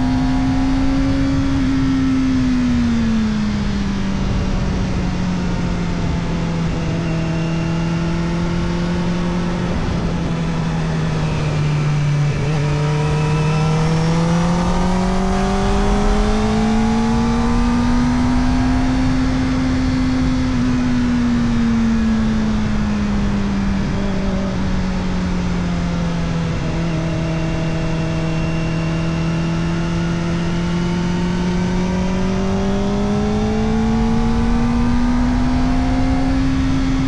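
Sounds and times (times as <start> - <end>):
motorcycle engine: 0.0 - 37.0.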